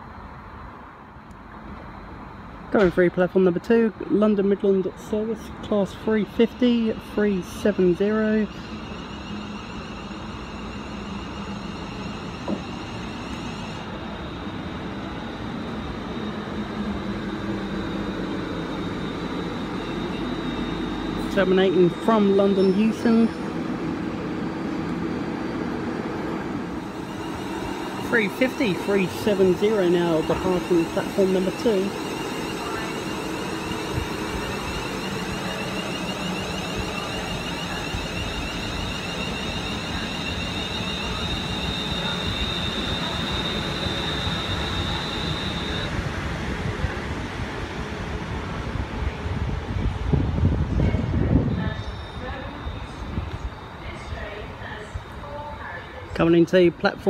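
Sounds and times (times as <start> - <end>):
electric train rumbling hum: 0.0 - 57.0
high electric whine: 26.7 - 46.0.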